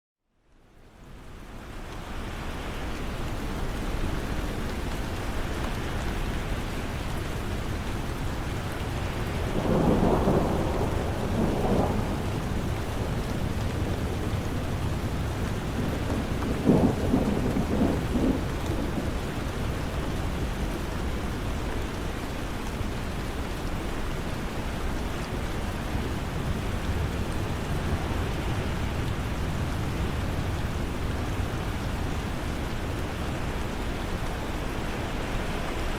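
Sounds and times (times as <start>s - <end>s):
steady rain falling: 0.2s - 35.9s
thunder rumble: 9.5s - 19.9s.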